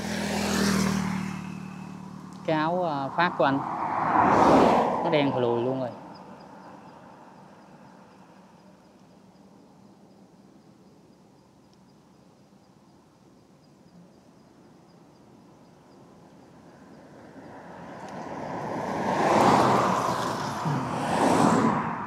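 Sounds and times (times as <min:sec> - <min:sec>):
road vehicle passing: 0:00.0 - 0:09.1, 0:15.3 - 0:22.0.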